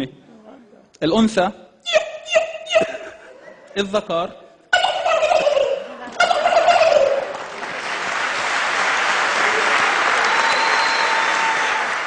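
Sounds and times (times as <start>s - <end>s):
man imitating turkey gobbling: 1.8s - 3.1s, 4.7s - 7.2s
audience applause: 6.1s - 12.0s.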